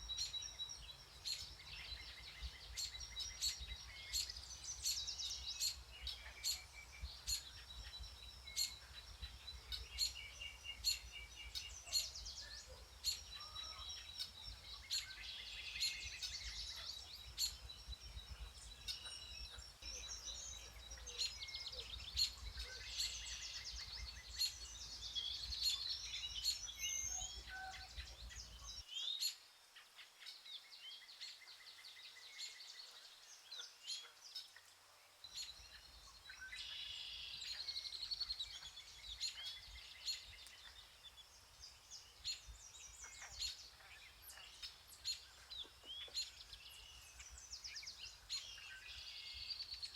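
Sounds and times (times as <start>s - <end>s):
songbirds singing and chirping: 0.0s - 49.9s.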